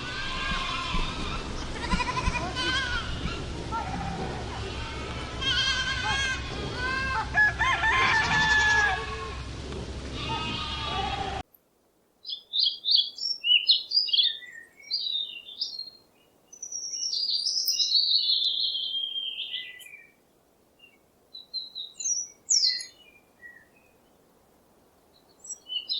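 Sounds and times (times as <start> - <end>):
small bird chirping: 12.2 - 20.1, 20.8 - 23.7, 25.1 - 25.9.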